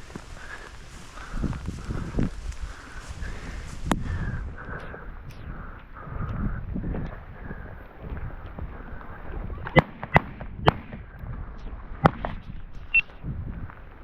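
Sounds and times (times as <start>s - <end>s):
wind on microphone: 0.0s - 14.0s
shotgun shots: 9.8s - 11.0s.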